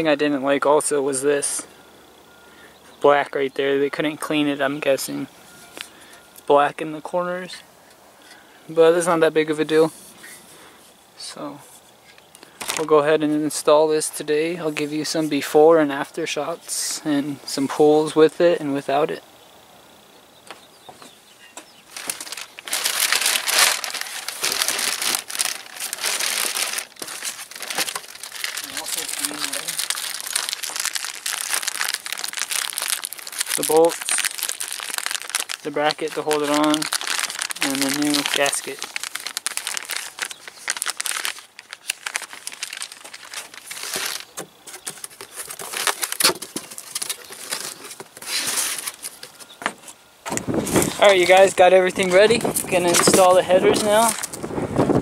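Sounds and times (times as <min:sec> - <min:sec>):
packaging crinkling: 0:12.4 - 0:12.9, 0:21.9 - 0:49.6, 0:50.4 - 0:54.6.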